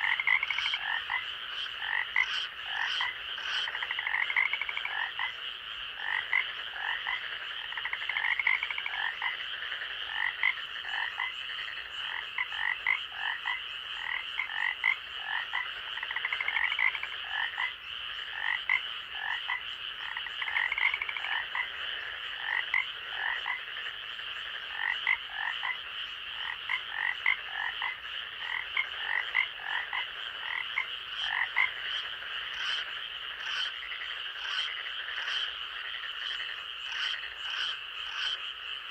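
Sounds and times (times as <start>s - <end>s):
frogs calling: 0.0s - 38.9s.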